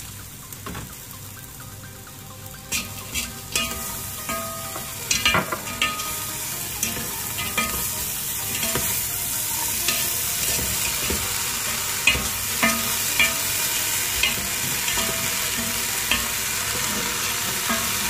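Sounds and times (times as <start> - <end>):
frying sizzle: 0.0 - 18.0
utensil knocking against a pot: 2.8 - 6.2.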